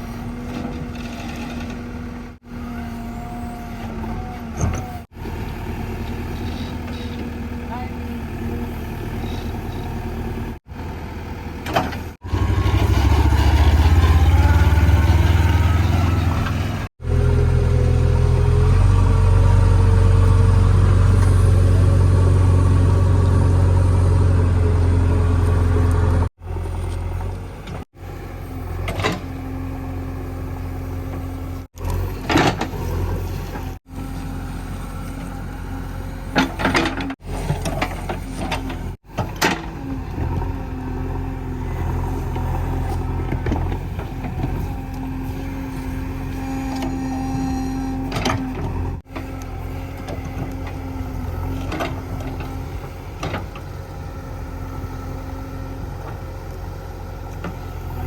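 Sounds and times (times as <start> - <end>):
diesel engine revving: 0.0 - 58.0
short clunks: 36.3 - 40.4.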